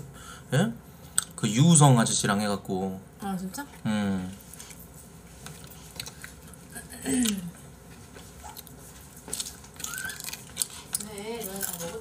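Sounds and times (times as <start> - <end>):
man chewing food: 3.8 - 12.0.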